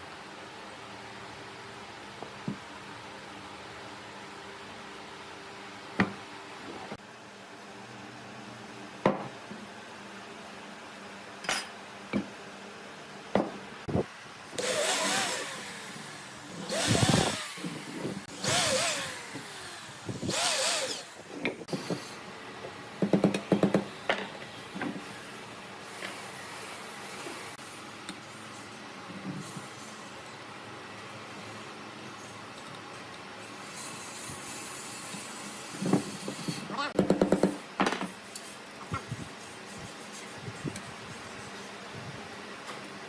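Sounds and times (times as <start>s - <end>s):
saw or rasp on wood: 16.7s - 21.2s.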